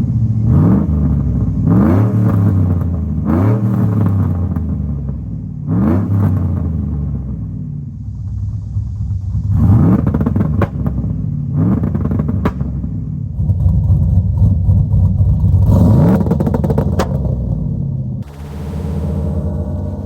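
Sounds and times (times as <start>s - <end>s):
car engine idling and revving: 0.0s - 20.0s
exhaust pops: 8.0s - 20.0s.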